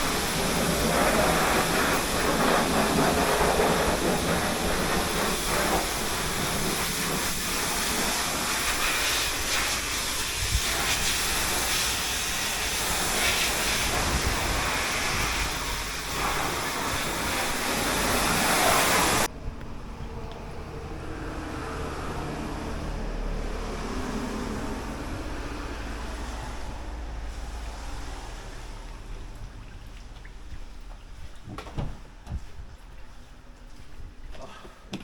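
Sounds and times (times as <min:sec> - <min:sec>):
pressure washer spraying water: 0:00.0 - 0:19.3.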